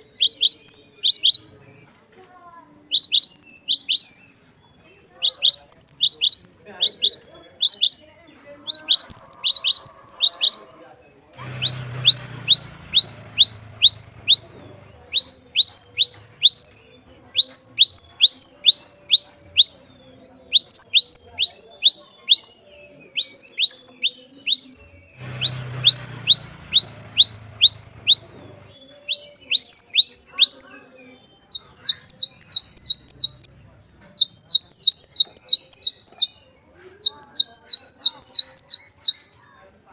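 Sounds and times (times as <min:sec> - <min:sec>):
bird singing sharp high notes: 0:02.5 - 0:08.0, 0:08.6 - 0:10.8, 0:11.4 - 0:33.6, 0:34.2 - 0:39.3
faint low hum: 0:07.5 - 0:18.0, 0:24.8 - 0:29.3.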